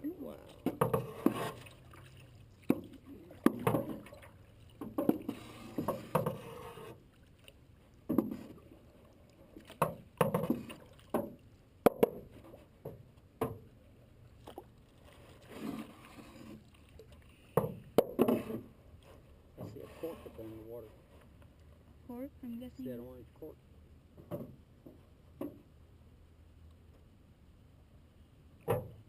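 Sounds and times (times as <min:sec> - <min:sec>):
paddles splashing in water: 0:00.0 - 0:12.8, 0:14.1 - 0:20.1.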